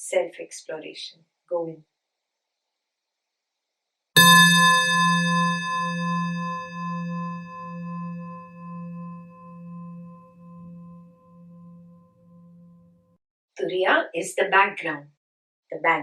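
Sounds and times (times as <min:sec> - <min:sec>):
singing bowl ringing: 0:04.2 - 0:13.0.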